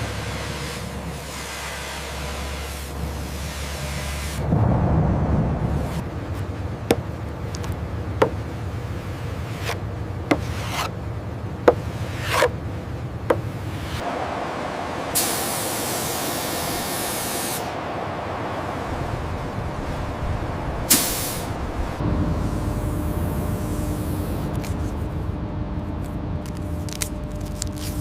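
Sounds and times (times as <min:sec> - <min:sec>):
low steady drone: 0:00.0 - 0:28.0
scraping: 0:05.9 - 0:11.0, 0:11.6 - 0:14.0.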